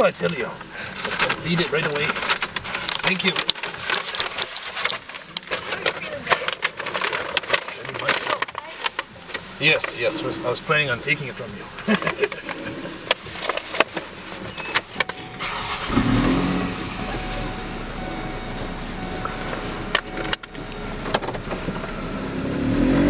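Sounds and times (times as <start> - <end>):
car engine running: 0.0 - 23.0
clicks and rustling in a car: 1.0 - 9.9, 11.9 - 17.0.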